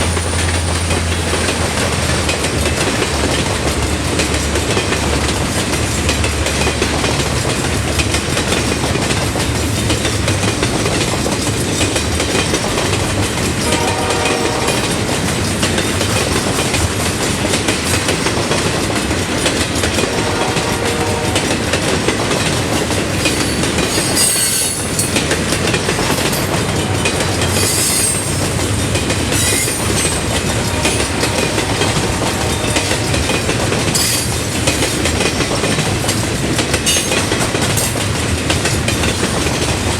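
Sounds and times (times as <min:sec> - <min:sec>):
train rumbling: 0:00.0 - 0:39.9
wheels clattering over rails: 0:00.0 - 0:39.9
train horn: 0:13.6 - 0:15.4, 0:20.0 - 0:21.9, 0:29.4 - 0:34.3
high-pitched wheel squeals: 0:23.4 - 0:25.1, 0:27.5 - 0:28.4, 0:29.4 - 0:30.2.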